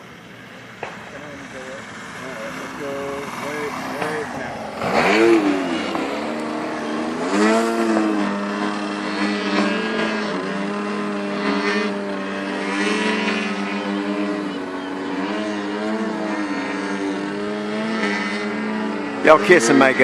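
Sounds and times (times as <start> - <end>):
model plane engine revving: 0.0 - 20.0.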